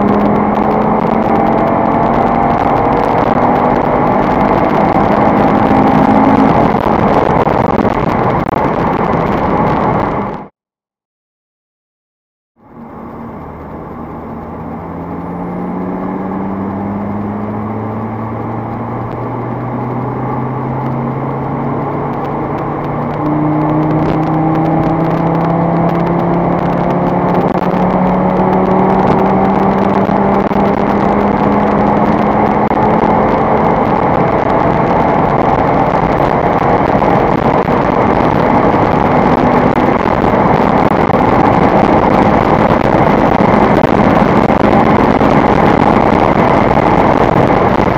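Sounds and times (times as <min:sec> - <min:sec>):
car engine accelerating hard: 0:00.0 - 0:10.5, 0:12.6 - 0:47.9
road and wind noise: 0:00.0 - 0:10.5, 0:12.6 - 0:47.9.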